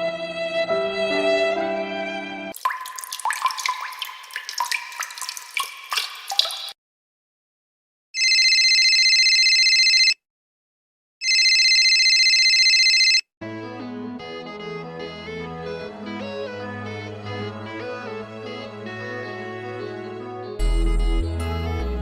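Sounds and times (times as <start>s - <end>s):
bubbling dripping water: 2.6s - 6.8s.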